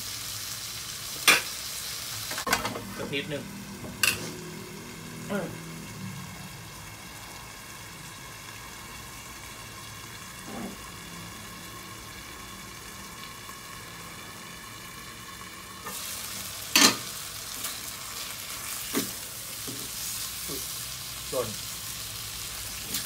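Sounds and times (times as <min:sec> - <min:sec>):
stir-frying sizzle in a pan: 0:00.0 - 0:23.0.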